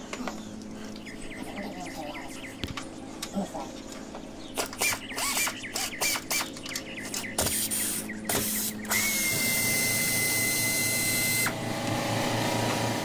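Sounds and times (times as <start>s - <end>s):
pneumatic air ratchet whining: 4.6s - 6.5s, 7.1s - 11.6s.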